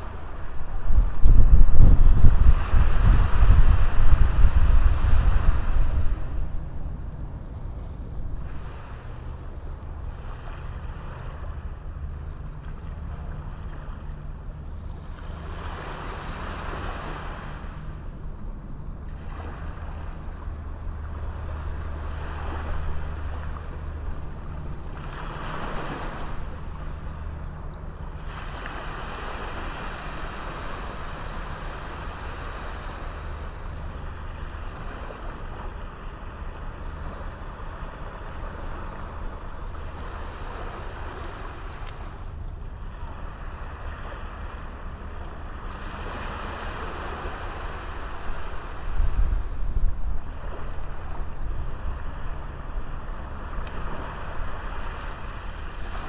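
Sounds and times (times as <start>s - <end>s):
waves washing up a beach: 0.0s - 7.3s, 8.2s - 56.0s
wind on microphone: 0.0s - 11.5s, 45.5s - 56.0s.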